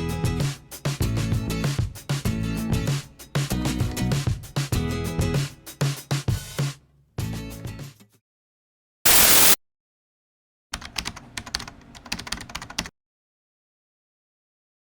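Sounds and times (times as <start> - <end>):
music: 0.0 - 8.2
static hiss: 9.1 - 9.6.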